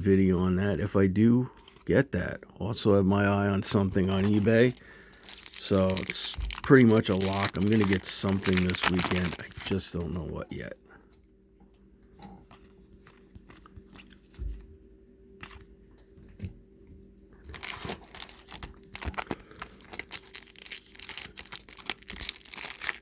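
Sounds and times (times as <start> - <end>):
foil wrapper tearing and crinkling: 4.0 - 10.2, 17.5 - 23.0.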